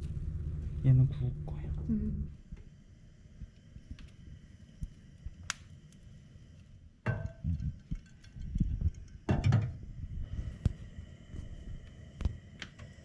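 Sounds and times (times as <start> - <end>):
kitchenware knocking and clattering: 7.1 - 9.8.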